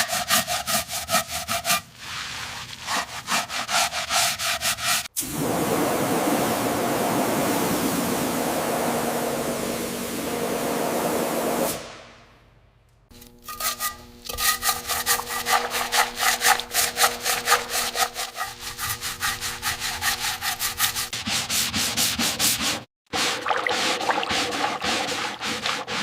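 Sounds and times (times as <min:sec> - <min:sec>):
hand sanding strokes: 0:00.0 - 0:05.2, 0:13.5 - 0:26.0.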